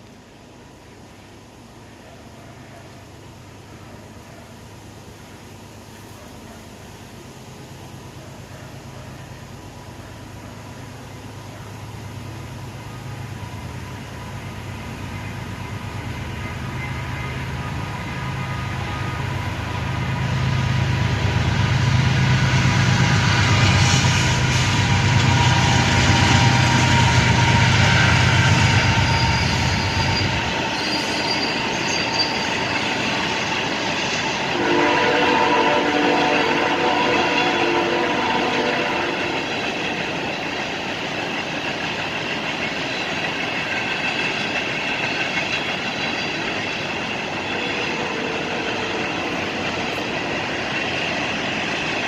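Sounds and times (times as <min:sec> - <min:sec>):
locomotive engine rumble: 0:00.0 - 0:52.0
train cars rolling: 0:00.0 - 0:52.0
train horn: 0:23.2 - 0:32.7, 0:34.5 - 0:39.6, 0:47.4 - 0:50.1.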